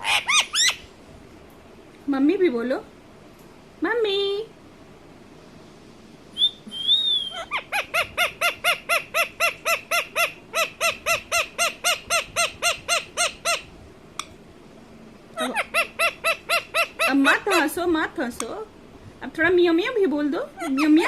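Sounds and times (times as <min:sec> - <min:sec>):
parrot rapid repeated calls: 0:00.0 - 0:00.9, 0:07.3 - 0:13.7, 0:15.4 - 0:17.7
parrot wavering whistle: 0:00.0 - 0:00.9, 0:06.4 - 0:13.7.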